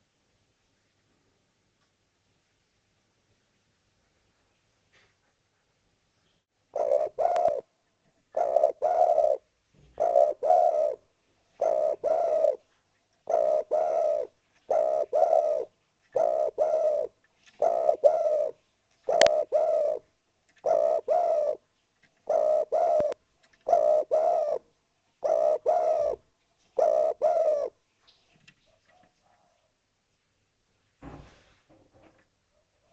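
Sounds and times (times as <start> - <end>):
dove cooing: 6.7 - 7.7, 8.3 - 21.6, 22.2 - 27.8, 32.6 - 32.9.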